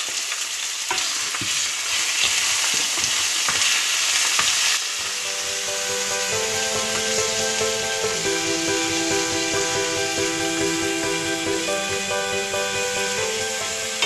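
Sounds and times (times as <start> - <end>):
chicken sizzling in oil: 0.0 - 14.0
background music: 5.0 - 14.0.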